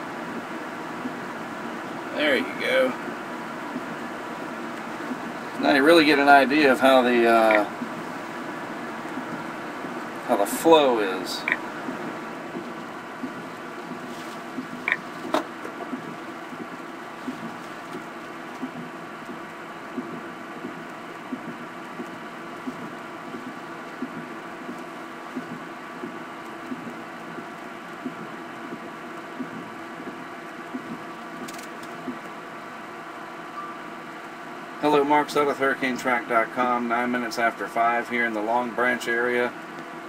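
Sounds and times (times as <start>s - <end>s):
idling vehicle hum: 0.0s - 40.0s
sharp clicks: 11.4s - 13.4s, 30.7s - 32.3s.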